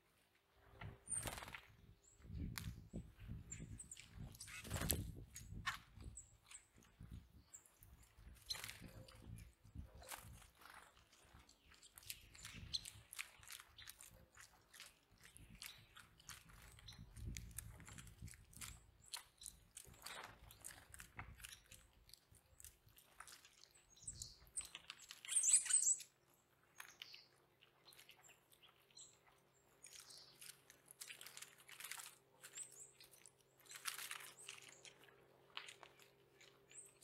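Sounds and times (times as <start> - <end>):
birds cracking seeds at feeder: 0.6 - 37.0
high bird chirps: 24.0 - 26.1.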